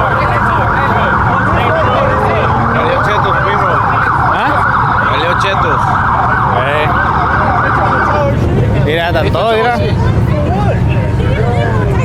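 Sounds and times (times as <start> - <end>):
police sirens wailing: 0.0 - 12.0.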